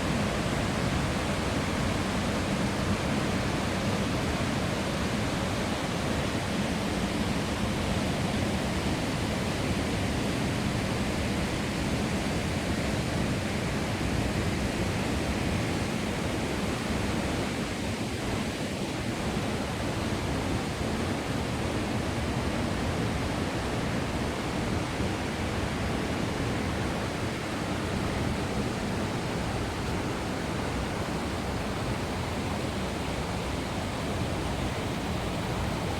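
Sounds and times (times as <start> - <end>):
waterfall rushing: 29.0 - 35.9.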